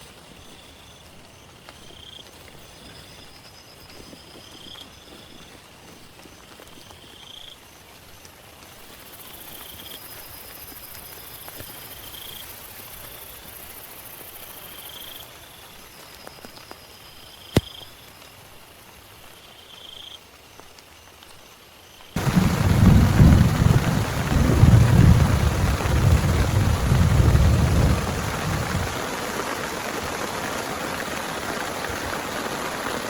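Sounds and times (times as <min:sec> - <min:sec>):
thunder: 0:22.2 - 0:29.4
heavy rain: 0:22.2 - 0:33.0.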